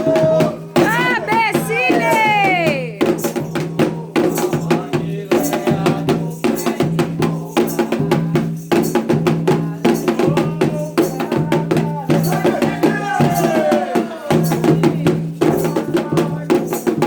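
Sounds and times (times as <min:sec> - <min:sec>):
voices singing: 0:00.0 - 0:07.4, 0:12.1 - 0:14.8
drums in fast rhythm: 0:00.0 - 0:17.0.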